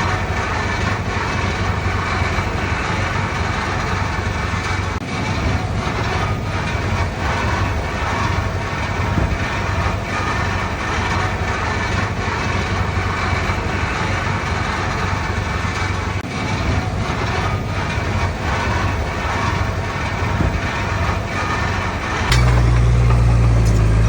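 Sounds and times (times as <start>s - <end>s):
bulldozer diesel engine drone: 0.0s - 24.0s
light metal clanking: 17.3s - 24.0s.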